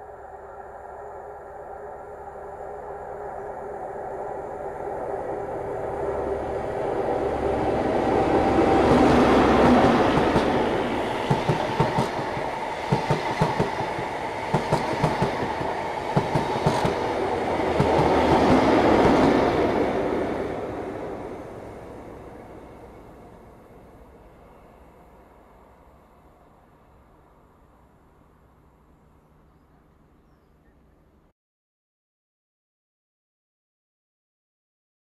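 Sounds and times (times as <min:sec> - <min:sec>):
diesel engine passing: 0:04.2 - 0:23.1.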